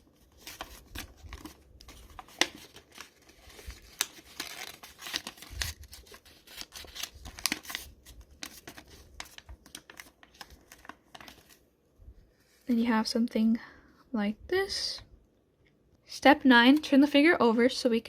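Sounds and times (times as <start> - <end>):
paper being folded and creased: 0.0 - 11.6.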